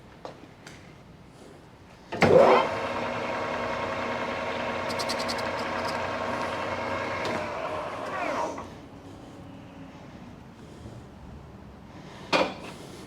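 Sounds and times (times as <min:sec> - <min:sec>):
lathe motor whining: 0:02.2 - 0:08.8.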